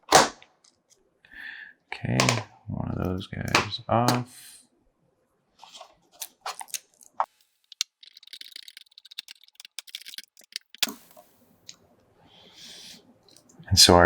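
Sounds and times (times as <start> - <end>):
plastic parts rattling: 5.6 - 11.3
plastic parts clicking: 6.2 - 11.3.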